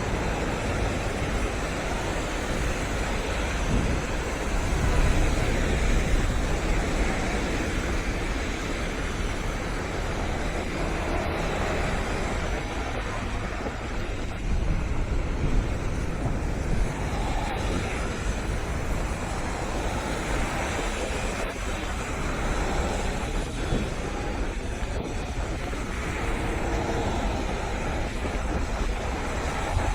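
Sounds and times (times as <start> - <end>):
stormy sea waves roaring: 0.0 - 29.9
strong wind: 0.0 - 29.9
wind buffeting microphone: 0.0 - 29.9.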